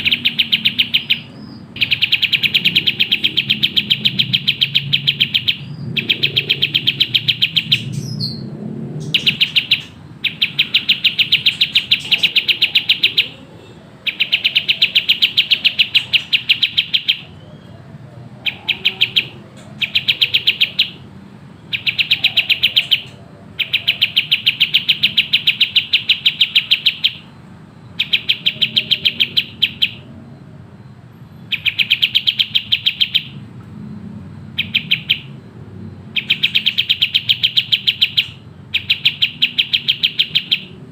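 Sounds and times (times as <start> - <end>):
songbird singing fast high notes: 0.0 - 13.4.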